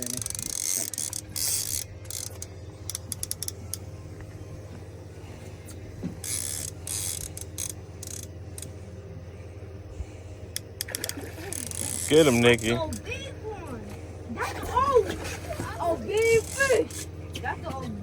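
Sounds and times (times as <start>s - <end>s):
fishing reel clicking: 0.0s - 3.8s, 6.2s - 8.7s, 10.5s - 13.0s
steady low hum: 0.0s - 18.0s.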